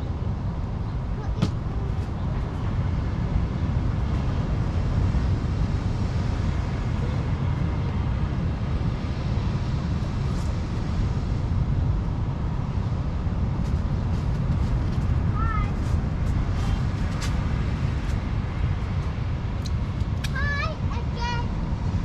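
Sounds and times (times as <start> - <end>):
rough surf roaring: 0.0 - 22.0
wind buffeting microphone: 0.0 - 22.0.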